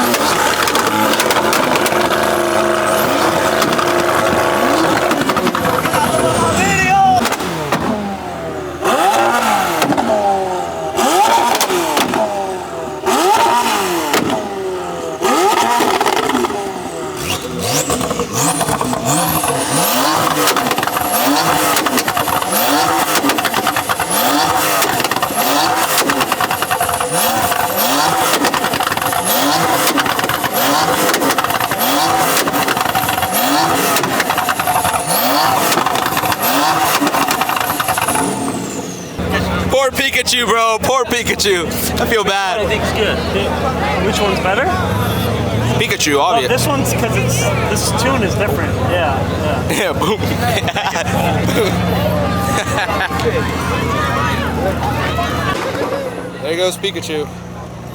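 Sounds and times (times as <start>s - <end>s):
launch limiter stutter and exhaust pops: 0.0s - 6.6s, 15.2s - 40.2s
car engine revving: 0.0s - 57.9s.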